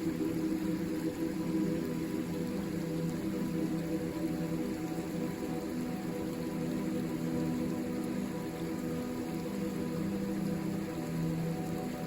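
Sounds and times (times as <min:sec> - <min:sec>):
soft ambient music: 0:00.0 - 0:12.0.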